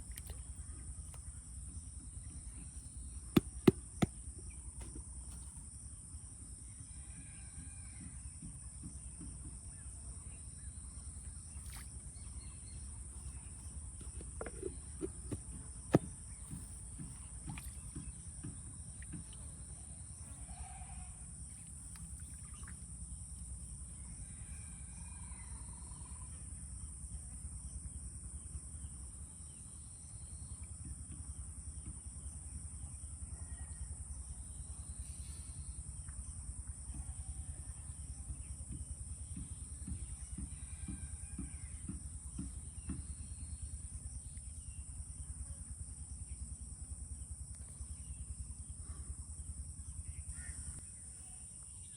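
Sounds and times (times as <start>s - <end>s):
insects droning high-pitched: 0.0s - 51.9s
faint bird-like calls: 19.2s - 22.8s.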